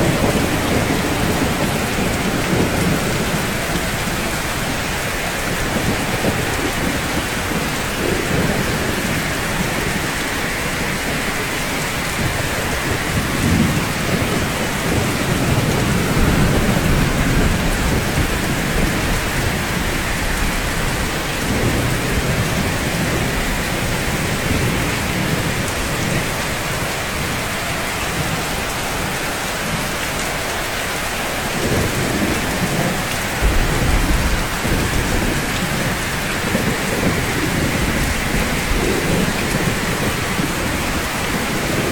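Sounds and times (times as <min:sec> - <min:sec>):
distant thunder rumbles: 0:00.0 - 0:27.4, 0:31.4 - 0:41.9
rain on a rooftop: 0:00.0 - 0:41.9.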